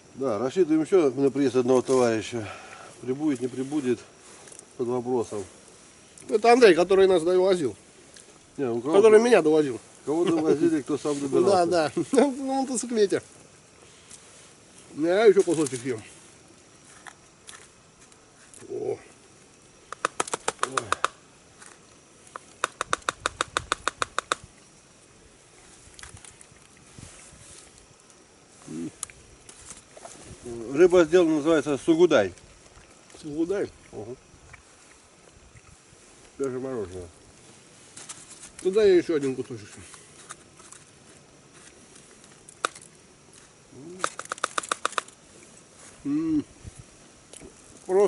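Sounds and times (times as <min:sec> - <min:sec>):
crisp chewing clicks: 0:19.8 - 0:24.5, 0:42.2 - 0:43.0, 0:44.0 - 0:45.2
person humming approval: 0:46.0 - 0:46.5.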